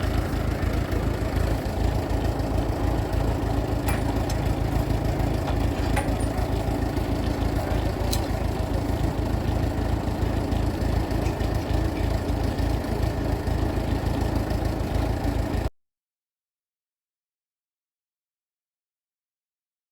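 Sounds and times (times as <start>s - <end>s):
tractor engine idling: 0.0s - 15.7s.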